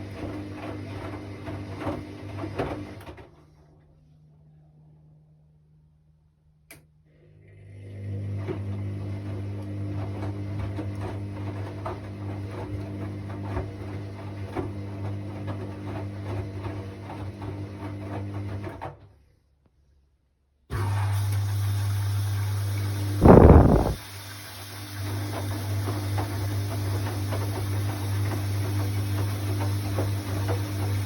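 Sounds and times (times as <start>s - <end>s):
washing machine motor humming: 7.4s - 18.6s, 20.8s - 31.0s.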